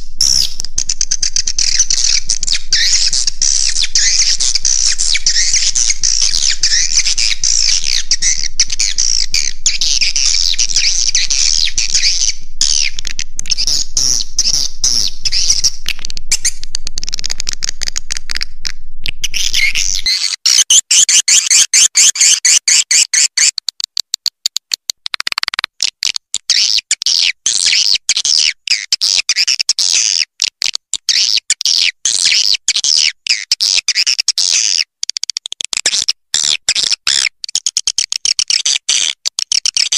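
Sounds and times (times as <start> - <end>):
low hum: 0.0 - 20.1
swiftlets twittering: 0.0 - 23.6.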